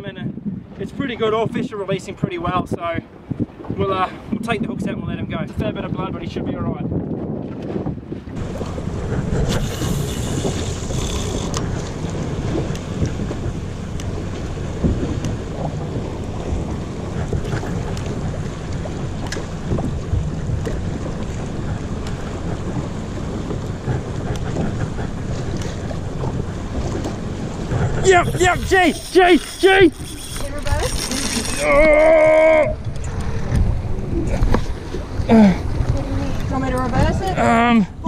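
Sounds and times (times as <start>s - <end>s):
wind buffeting microphone: 0.0s - 38.0s
boat engine hum: 7.4s - 38.0s
water wash: 8.3s - 38.0s.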